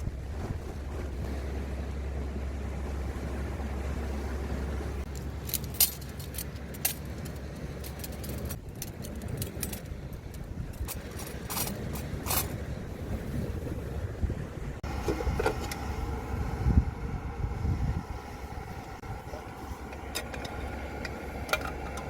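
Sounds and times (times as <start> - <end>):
wind: 0.0 - 22.0.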